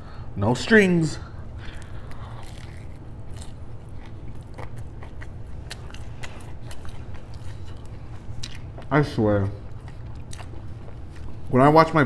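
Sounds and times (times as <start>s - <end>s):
steady low hum: 0.0s - 12.0s
biting and open-mouthed chewing: 1.4s - 12.0s.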